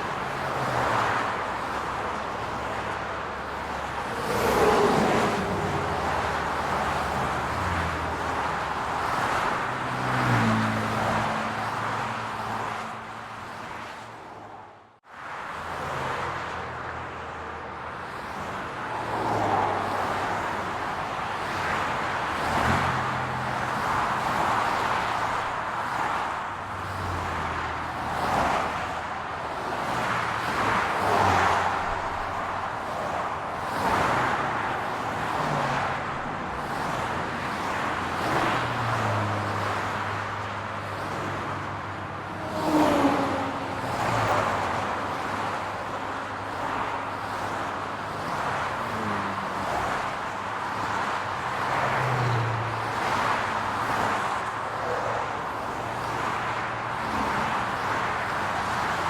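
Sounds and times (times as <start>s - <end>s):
cars passing: 0.0s - 59.0s.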